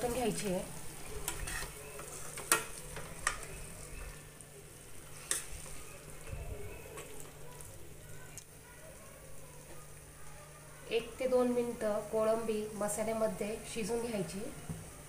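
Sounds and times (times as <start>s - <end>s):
prawns sizzling in a pan: 0.0s - 15.0s
steel spoon scraping a pan: 1.1s - 3.5s, 5.1s - 5.7s.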